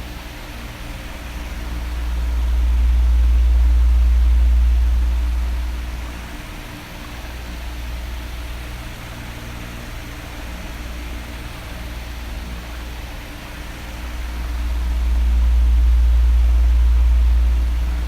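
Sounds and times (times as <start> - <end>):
electric fan blowing: 0.0 - 18.0
faint motor hum: 0.0 - 18.0
deep rumble of moving air: 0.6 - 9.1, 11.9 - 18.0.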